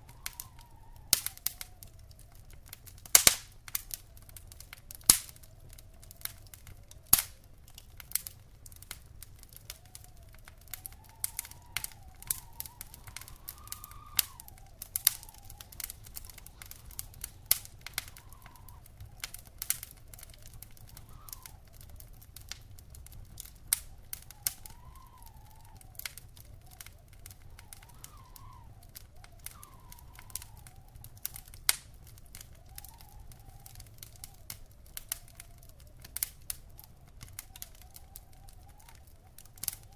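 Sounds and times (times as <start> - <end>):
faint wavering whistle: 0.0 - 2.6, 9.5 - 22.2, 23.8 - 31.6, 32.2 - 36.0, 36.8 - 39.9
wood fire crackling: 0.0 - 39.9.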